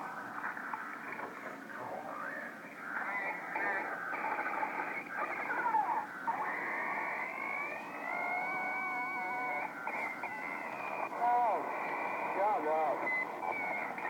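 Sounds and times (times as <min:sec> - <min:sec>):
electronic toy effects over radio: 0:02.9 - 0:14.0
held electronic tone: 0:06.3 - 0:14.0.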